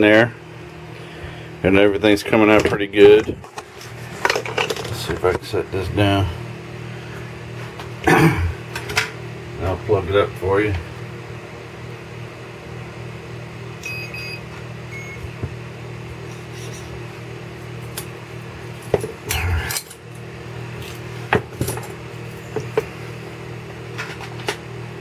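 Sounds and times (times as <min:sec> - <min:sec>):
steady background hum: 0:00.0 - 0:25.0
short electronic beeps: 0:13.8 - 0:15.2.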